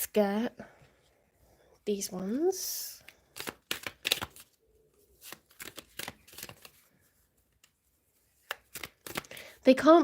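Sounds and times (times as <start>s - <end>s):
playing cards flicking and tapping: 3.0s - 4.5s, 5.2s - 6.8s, 7.6s - 9.4s.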